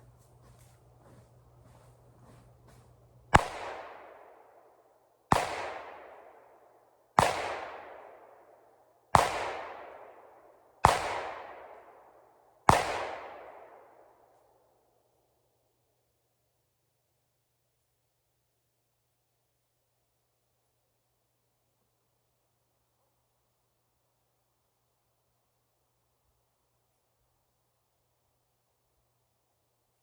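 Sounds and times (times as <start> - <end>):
echoing gunshots: 3.3 - 6.6, 7.2 - 14.2.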